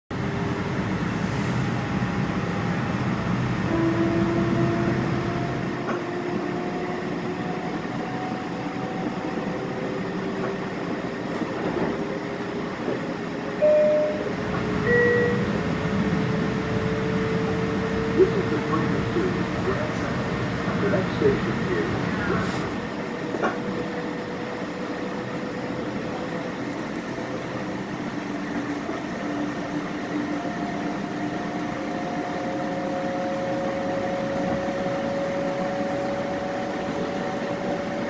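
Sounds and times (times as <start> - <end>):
train rumble and rail noise: 0.1 - 38.0
brief high tones: 13.6 - 15.6.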